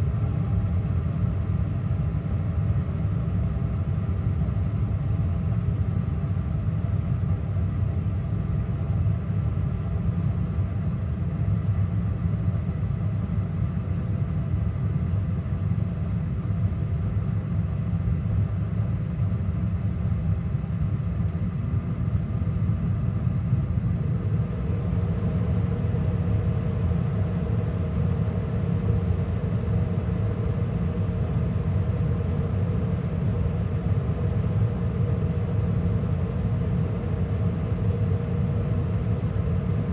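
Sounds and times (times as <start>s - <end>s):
furnace burners low rumble: 0.0s - 39.9s
blower humming: 22.2s - 39.9s.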